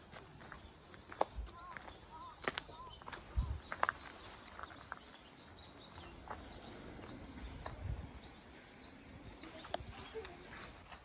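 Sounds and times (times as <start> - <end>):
outdoor background noise: 0.0 - 11.0
small bird chirping: 0.0 - 11.0.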